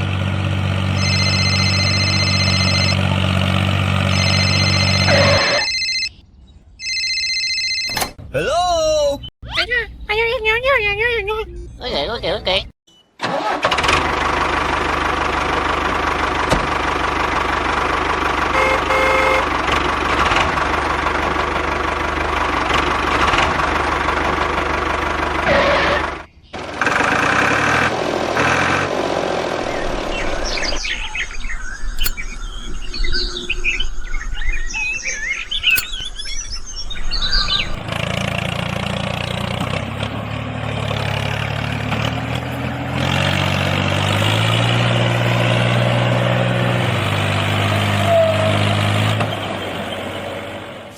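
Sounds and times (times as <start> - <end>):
birds chirping: 4.0 - 7.0, 9.0 - 13.2, 29.5 - 37.9.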